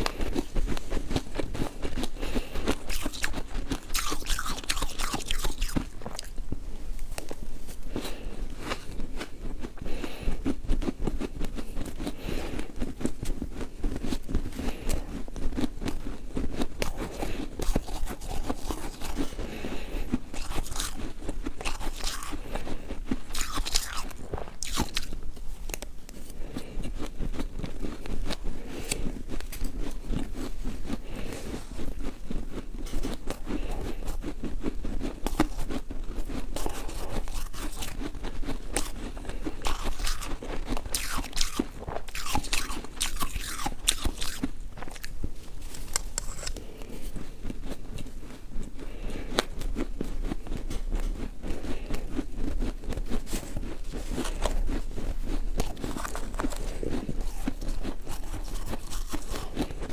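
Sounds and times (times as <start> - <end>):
ice being chewed crunching: 0.0 - 59.9.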